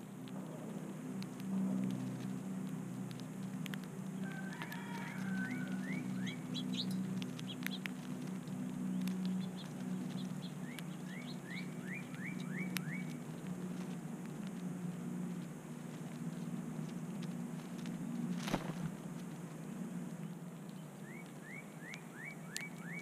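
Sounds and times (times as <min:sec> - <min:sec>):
low hum: 0:00.0 - 0:23.0
songbird whistling notes: 0:04.2 - 0:07.9, 0:09.3 - 0:13.2, 0:20.8 - 0:23.0.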